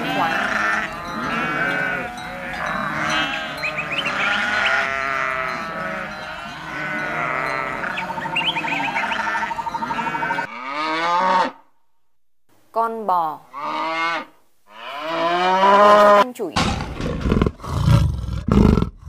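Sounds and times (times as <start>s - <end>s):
loud drawn-out bleat: 0.0s - 11.6s, 13.5s - 16.3s
sheep and goats bleating: 0.0s - 11.6s, 13.5s - 16.3s.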